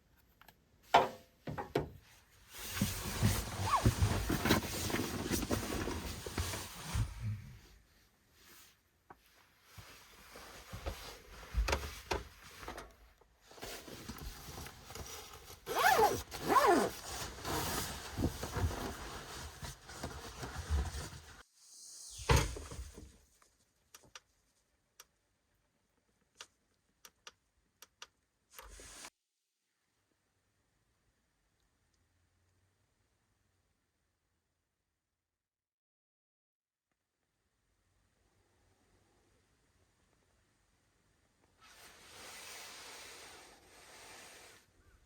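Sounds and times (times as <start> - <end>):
rustling handling noises: 2.0 - 7.2, 8.5 - 21.4
zipper pulls: 3.4 - 5.3, 15.6 - 21.0.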